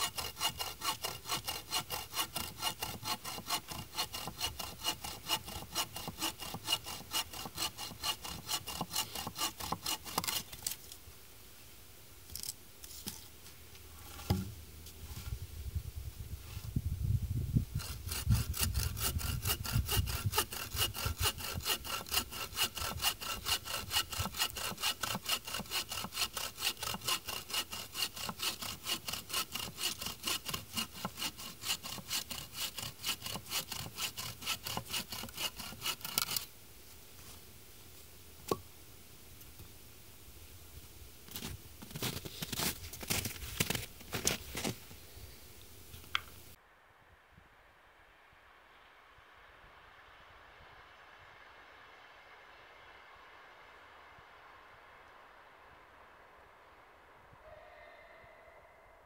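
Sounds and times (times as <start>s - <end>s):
hand saw cutting wood: 0.0s - 10.8s, 17.7s - 36.5s, 41.3s - 44.8s.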